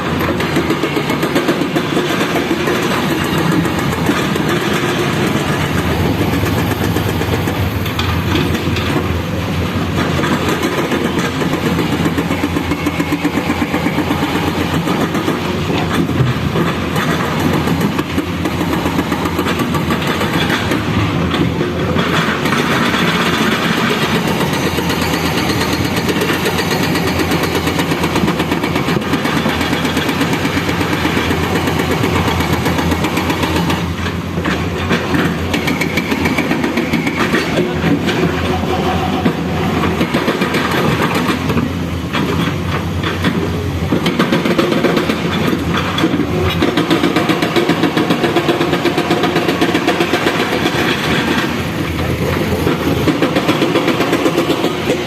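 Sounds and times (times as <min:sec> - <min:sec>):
heavy diesel engine chugging: 0:00.0 - 0:42.2
machine clatter: 0:00.0 - 0:55.0.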